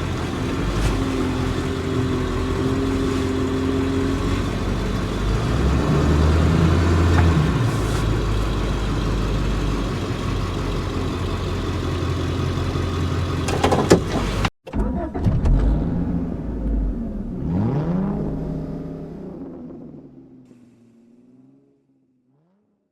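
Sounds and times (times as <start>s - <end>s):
diesel truck engine running: 0.0s - 14.5s
road noise: 0.0s - 14.5s
thumps: 13.5s - 15.8s.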